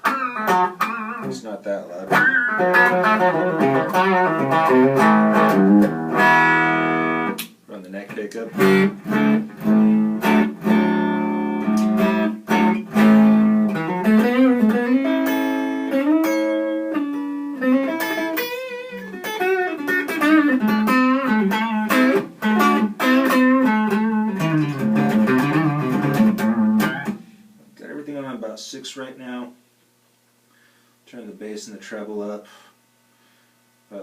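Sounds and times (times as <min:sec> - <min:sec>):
clean electric guitar: 0:00.0 - 0:07.6, 0:08.4 - 0:27.8.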